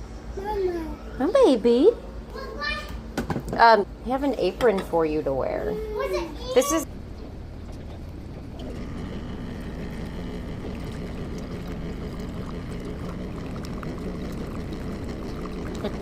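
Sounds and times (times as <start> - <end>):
low hum: 6.8 - 16.0
running water rushing: 8.6 - 16.0.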